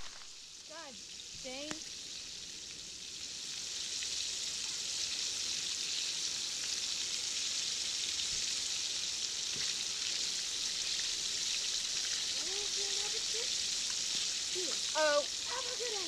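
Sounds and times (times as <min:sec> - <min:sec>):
oil spattering crackles: 0:00.0 - 0:00.5
deep-frying sizzle: 0:00.0 - 0:16.0.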